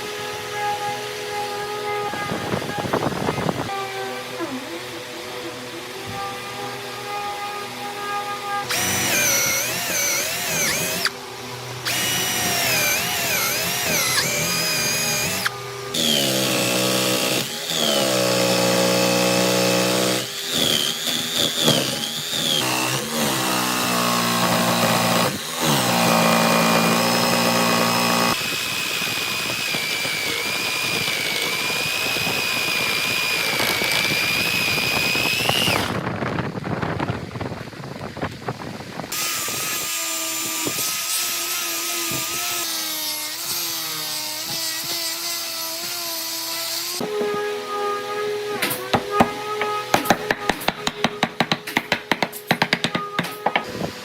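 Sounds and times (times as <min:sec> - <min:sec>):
electric drill running: 0:00.0 - 0:36.0.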